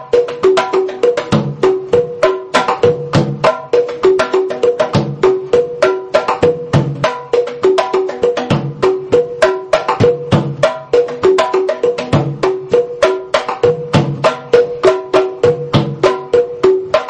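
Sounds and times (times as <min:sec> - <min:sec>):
hand drums playing fast rhythm: 0:00.0 - 0:17.0.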